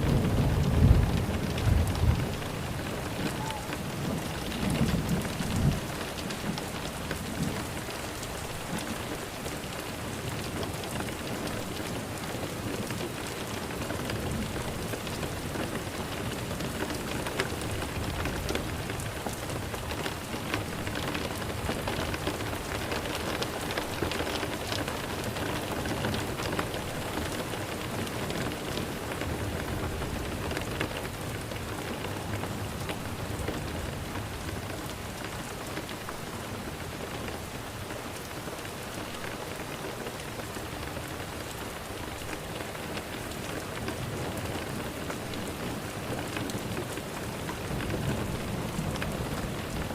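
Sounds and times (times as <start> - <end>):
low thunder rumble: 0.0 - 6.6
rain falling on a surface: 0.0 - 49.9.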